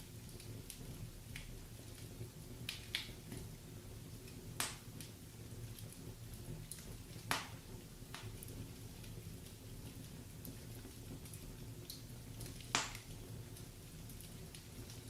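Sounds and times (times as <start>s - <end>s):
low fire rumble: 0.0s - 15.0s
wood fire crackling: 0.0s - 15.0s
sharp pops: 4.6s - 4.8s, 7.3s - 7.6s, 12.7s - 13.0s.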